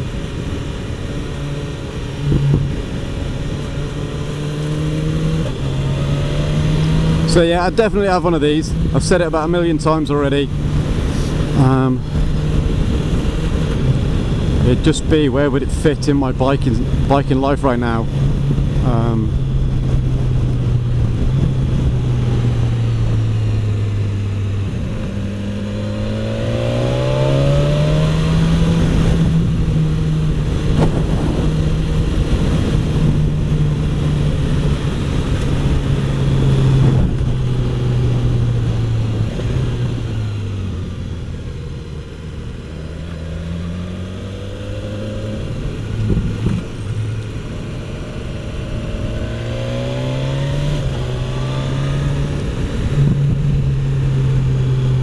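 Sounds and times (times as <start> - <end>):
motorcycle engine accelerating: 0.0 - 55.0
wind rushing: 16.3 - 40.2.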